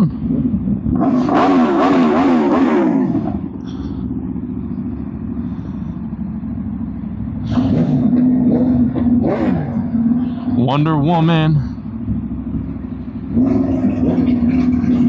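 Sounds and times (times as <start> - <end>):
motorcycle engine running steadily: 0.0 - 15.0
engine revving loudly: 0.8 - 3.5, 7.4 - 10.6, 13.3 - 15.0.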